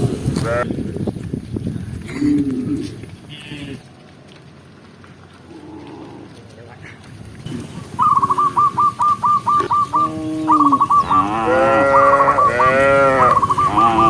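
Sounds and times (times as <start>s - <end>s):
cattle mooing: 10.0s - 14.0s.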